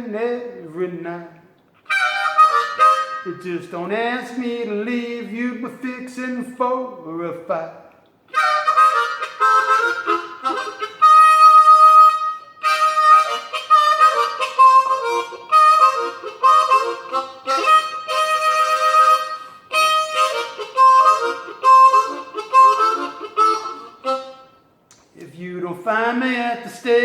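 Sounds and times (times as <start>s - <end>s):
harmonica playing blues: 1.8s - 3.7s, 8.3s - 24.7s.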